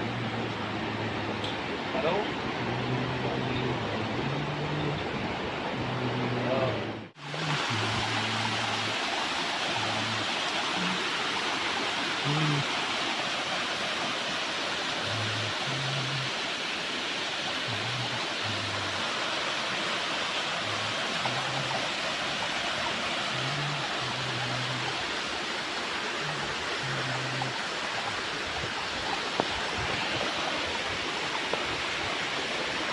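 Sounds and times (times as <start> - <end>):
waterfall roaring: 0.0 - 32.9.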